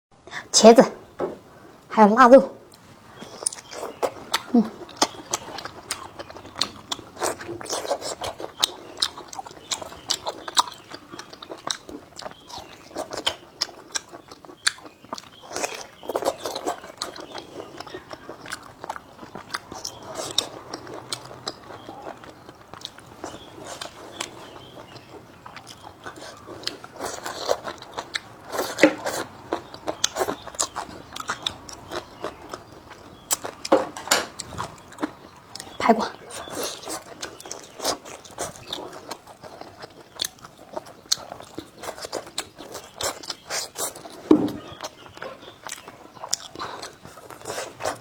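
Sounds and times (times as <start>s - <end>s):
person eating crunchy food: 2.7s - 48.0s
mouth clicks and smacks: 3.3s - 48.0s.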